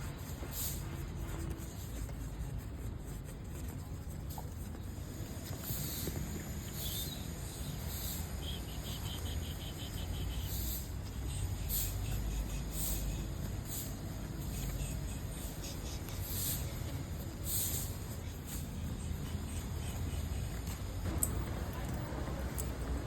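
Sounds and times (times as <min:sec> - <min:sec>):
insects chirping: 0:06.8 - 0:21.1.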